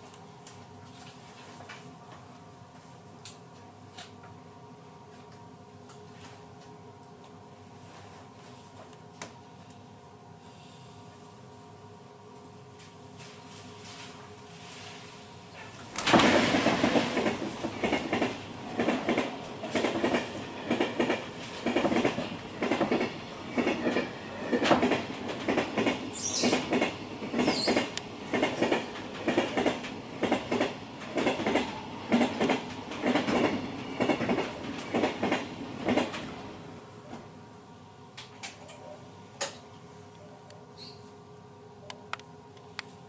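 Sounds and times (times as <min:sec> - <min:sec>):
train wheels clattering over joints: 0:16.0 - 0:36.4.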